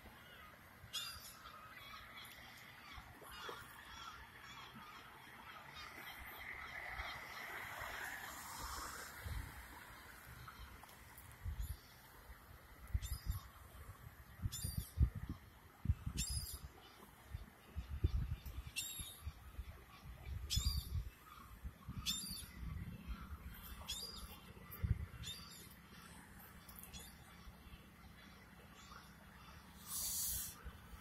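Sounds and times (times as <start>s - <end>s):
wind buffeting microphone: 8.6s - 9.7s, 12.9s - 16.8s, 17.4s - 25.4s.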